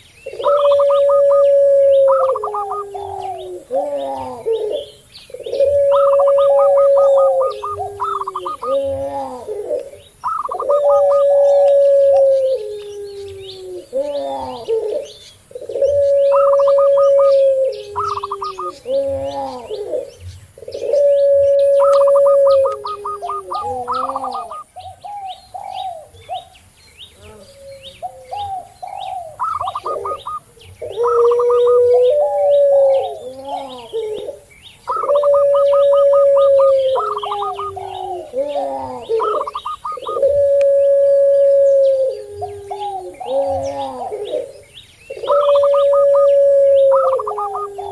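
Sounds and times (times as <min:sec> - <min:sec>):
dove long drawn-out coo: 0:00.0 - 0:26.6, 0:27.2 - 0:47.9
dove calls: 0:00.0 - 0:47.9
small birds chirping: 0:00.0 - 0:47.9.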